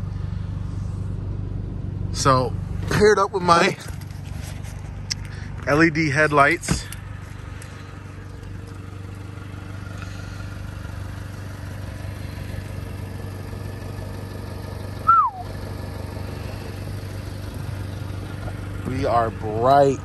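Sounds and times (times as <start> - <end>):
car engine idling: 0.0 - 20.0
short falling chirp: 15.0 - 15.5.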